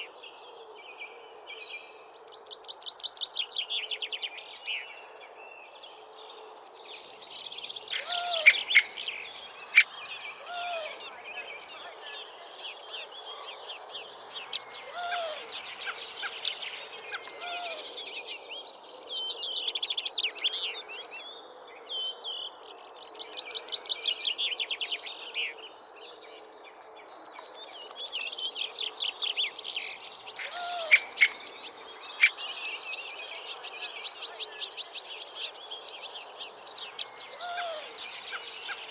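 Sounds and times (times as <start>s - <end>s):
bird trilling: 7.9s - 9.0s, 30.4s - 31.6s.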